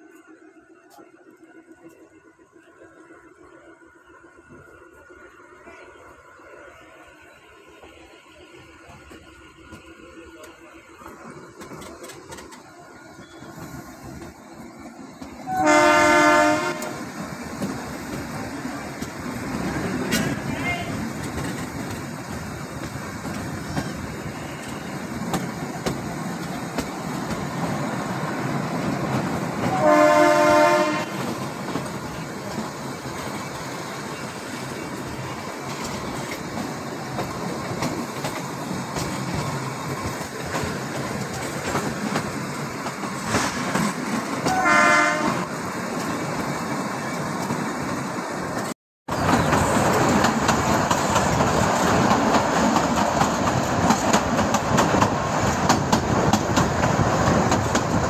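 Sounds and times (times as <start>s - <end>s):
toy train horn: 15.5s - 17.0s, 29.6s - 31.2s, 44.4s - 45.5s.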